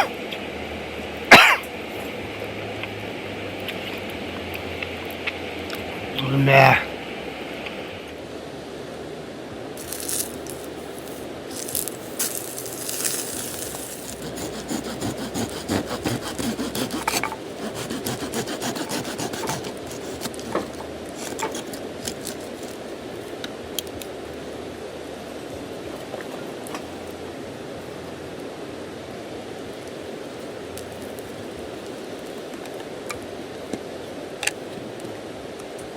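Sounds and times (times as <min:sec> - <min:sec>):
steady hiss: 0:09.7 - 0:17.9
scraping strokes: 0:09.8 - 0:22.7.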